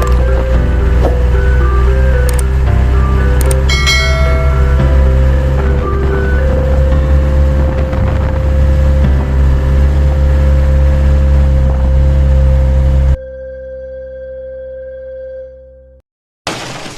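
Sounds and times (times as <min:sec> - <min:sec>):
diesel truck engine running: 0:00.0 - 0:13.2
held tone: 0:03.0 - 0:06.9.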